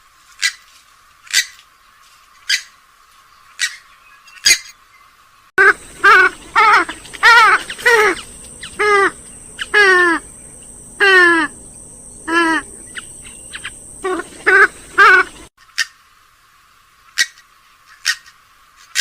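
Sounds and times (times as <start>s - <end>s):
harsh nasal bird calls: 3.4s - 16.0s
thin high hiss: 5.6s - 17.7s.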